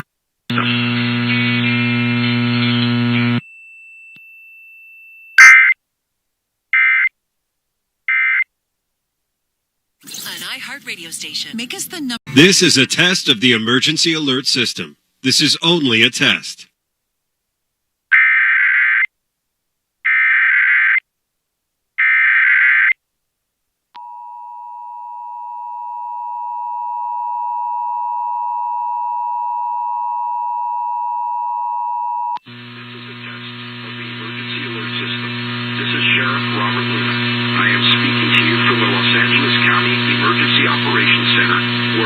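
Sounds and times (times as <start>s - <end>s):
loud hum with hiss: 0.5s - 3.4s, 32.5s - 42.0s
screechy warbling data bursts: 5.4s - 5.8s, 6.8s - 7.1s, 8.1s - 8.5s, 20.1s - 21.0s, 22.0s - 23.0s.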